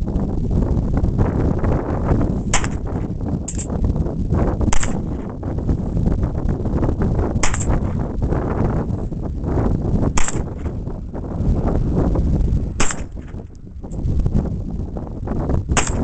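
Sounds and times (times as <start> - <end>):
wind rumble on microphone: 0.0 - 16.0
rifle gunshots: 2.5 - 3.6, 4.7 - 5.3, 7.4 - 8.0, 10.2 - 10.7, 12.8 - 13.4, 15.8 - 16.0.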